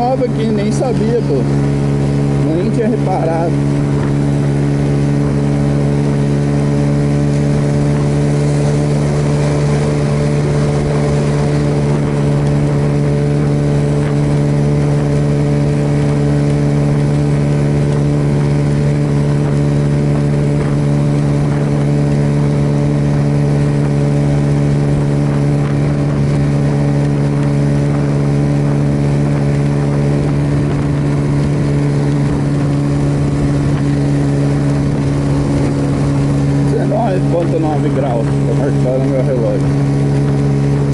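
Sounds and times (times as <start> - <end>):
motorcycle engine cruising: 0.0 - 40.9
wind and road noise: 0.0 - 40.9.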